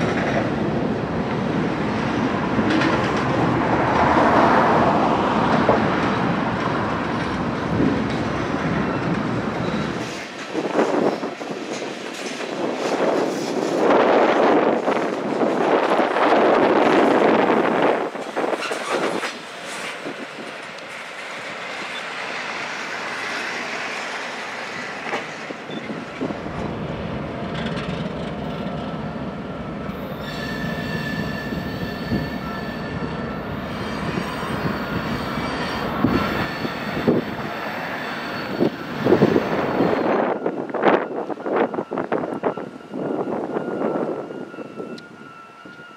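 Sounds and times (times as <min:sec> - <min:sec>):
train wheels rumbling and knocking: 0:00.0 - 0:45.9
high wheel squeal: 0:29.9 - 0:45.9.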